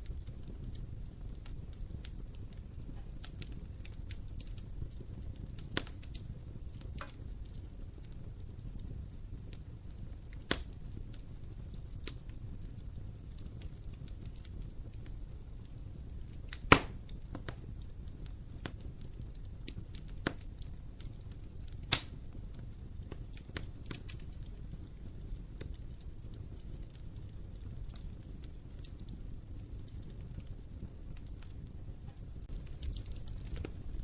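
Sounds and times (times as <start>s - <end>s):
fire crackling: 0.0s - 34.0s
fire flames rumbling: 0.0s - 34.0s
sharp wood pops: 16.7s - 17.0s.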